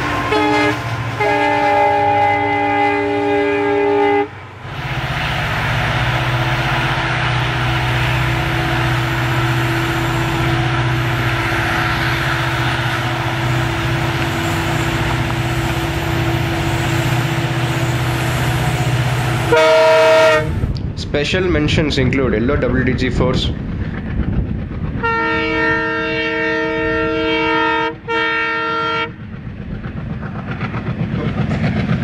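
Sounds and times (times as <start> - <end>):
train horn: 0.0 - 4.4, 18.9 - 20.6, 25.0 - 29.2
diesel locomotive engine droning: 0.0 - 32.0
rushing hiss: 4.7 - 19.5.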